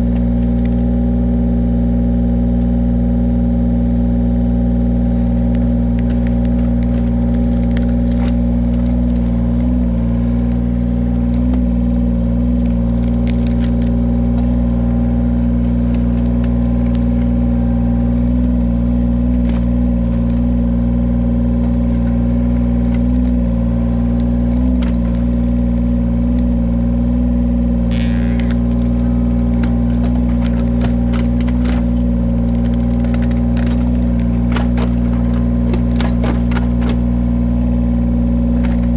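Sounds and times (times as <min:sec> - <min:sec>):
machine engine running: 0:00.0 - 0:38.9
sharp cracks and knocks: 0:05.3 - 0:17.5, 0:27.8 - 0:37.2.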